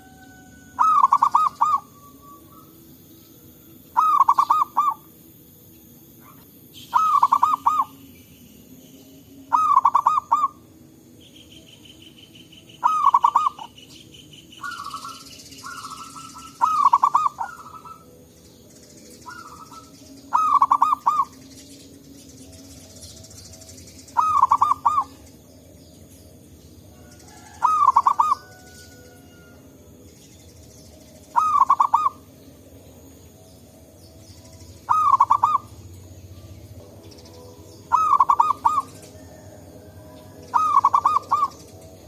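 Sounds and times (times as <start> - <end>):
soft dove calls: 0.0 - 2.7, 4.0 - 5.1, 6.2 - 7.9, 9.5 - 10.6, 12.8 - 13.7, 14.6 - 18.1, 19.2 - 21.3, 24.1 - 25.2, 27.0 - 29.5, 31.3 - 32.3, 34.9 - 35.8, 37.9 - 41.6
dove cooing: 0.0 - 2.8, 3.9 - 5.1, 6.2 - 8.0, 9.5 - 10.6, 12.8 - 13.8, 14.6 - 18.1, 19.2 - 21.3, 24.1 - 25.3, 27.0 - 29.6, 31.3 - 32.4, 34.8 - 35.8, 37.9 - 41.7
high steady buzz: 0.0 - 42.0.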